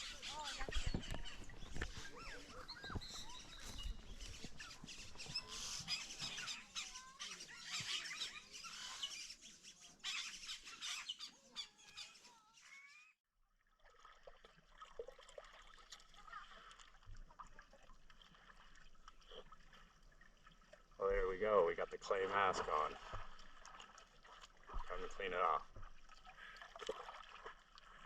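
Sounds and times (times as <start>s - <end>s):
birds chirping and squawking: 0.0s - 13.1s.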